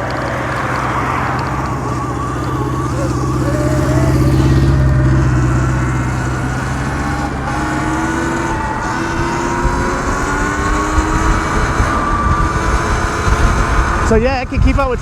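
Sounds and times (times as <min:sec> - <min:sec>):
electric motor whining: 0:00.0 - 0:15.0
passing traffic rumble: 0:00.0 - 0:15.0
wind noise: 0:00.0 - 0:15.0.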